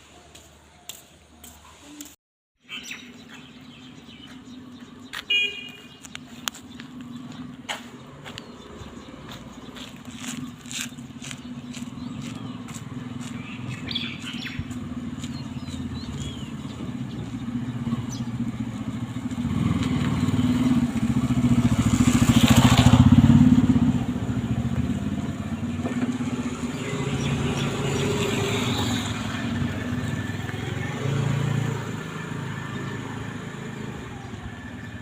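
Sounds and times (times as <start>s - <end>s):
bird chirps: 2.6s - 18.5s
vehicle engine running: 6.1s - 35.0s.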